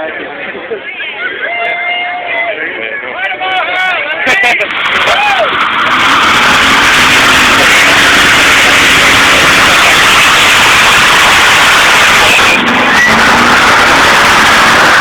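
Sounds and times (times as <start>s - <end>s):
tyres spinning and screeching: 4.2s - 15.0s
car engine at high revs: 4.6s - 15.0s.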